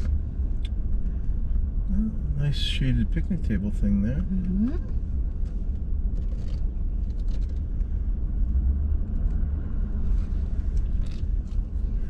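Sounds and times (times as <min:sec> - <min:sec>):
truck rumbling from inside cab: 0:00.0 - 0:12.0.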